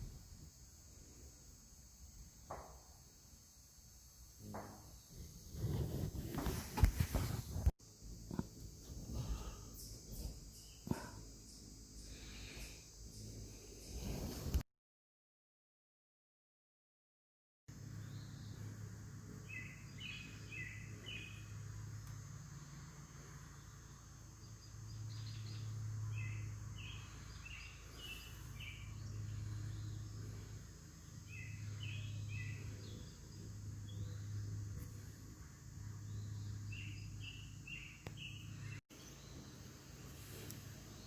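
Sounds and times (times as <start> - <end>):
low hum: 17.7 - 41.0
small birds chirping: 17.8 - 22.2, 23.2 - 41.0.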